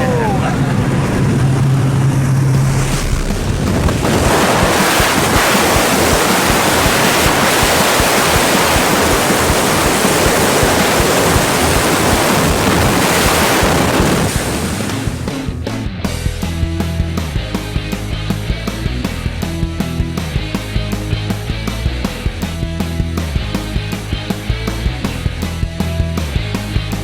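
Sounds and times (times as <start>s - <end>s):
wind rushing over microphone: 0.0s - 15.5s
aircraft engine drone: 0.0s - 15.6s.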